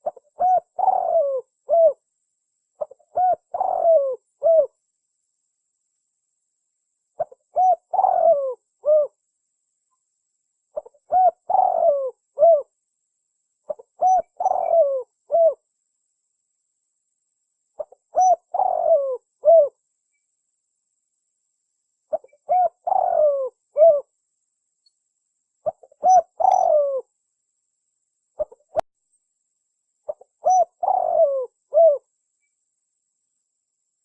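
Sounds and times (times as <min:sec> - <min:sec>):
dove cooing: 0:00.0 - 0:02.0, 0:02.8 - 0:04.7, 0:07.2 - 0:09.2, 0:10.8 - 0:12.7, 0:13.7 - 0:15.6, 0:17.8 - 0:19.8, 0:22.1 - 0:24.1, 0:25.6 - 0:27.1, 0:28.4 - 0:28.8, 0:30.1 - 0:32.1.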